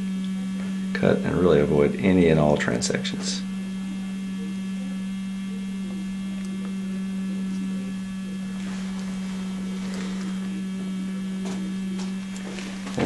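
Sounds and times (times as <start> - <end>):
electrical hum: 0.0 - 13.0
faint rustling: 8.5 - 13.0.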